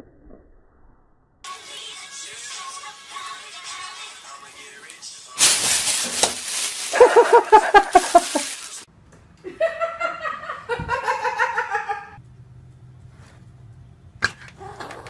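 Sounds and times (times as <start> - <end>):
high-pitched laughter: 6.9 - 8.6.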